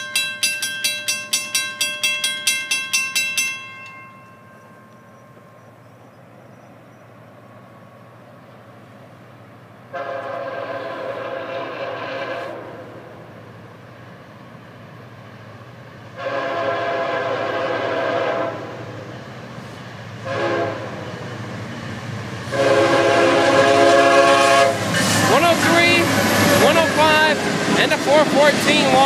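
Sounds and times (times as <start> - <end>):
locomotive rumble: 0.0 - 29.0
train horn blasts: 9.9 - 13.1, 16.2 - 18.9, 20.2 - 21.1, 22.5 - 26.0.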